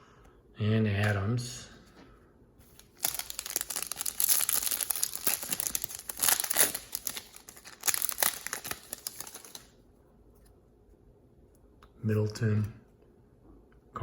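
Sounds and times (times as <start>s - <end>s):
foil wrapper crinkling: 2.7s - 9.8s.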